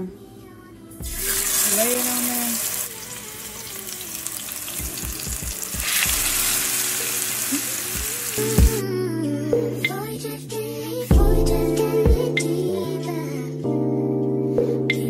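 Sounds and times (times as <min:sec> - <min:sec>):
background music: 0:00.0 - 0:15.0
chicken sizzling in a frying pan: 0:01.1 - 0:08.8.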